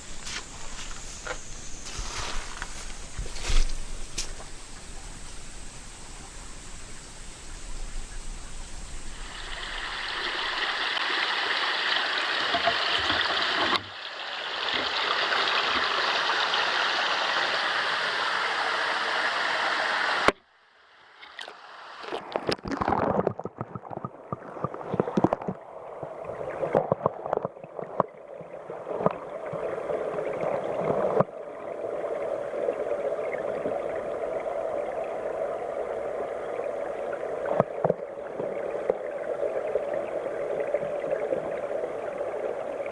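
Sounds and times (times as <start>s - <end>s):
stream rushing: 9.0s - 20.3s.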